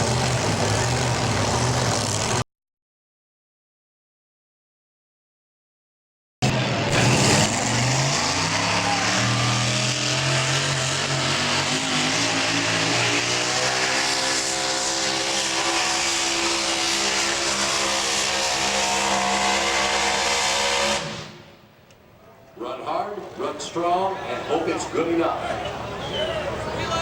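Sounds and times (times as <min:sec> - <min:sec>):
truck engine at high revs: 0:00.0 - 0:02.4, 0:06.4 - 0:21.6.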